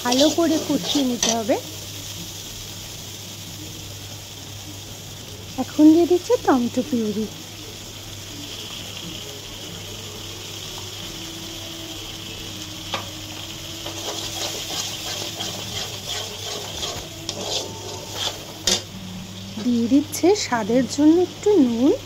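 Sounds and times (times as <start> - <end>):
paste sizzling in hot oil: 0.0 - 22.0
steel spatula scraping pan: 0.1 - 1.5, 13.8 - 18.9.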